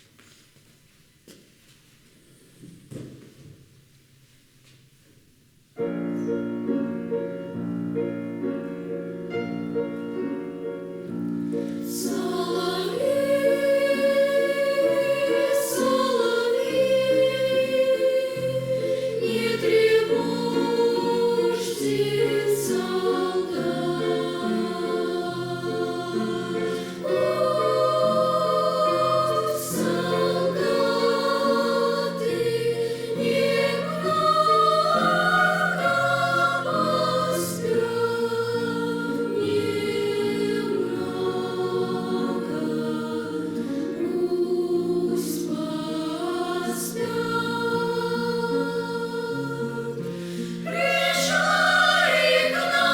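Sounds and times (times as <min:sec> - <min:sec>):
children's choir singing: 0:11.5 - 0:52.9.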